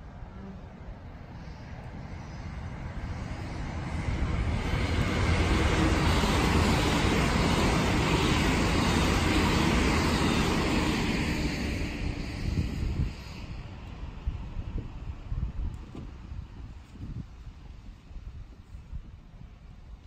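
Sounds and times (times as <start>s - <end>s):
train wheels rumbling on rails: 1.4s - 18.6s.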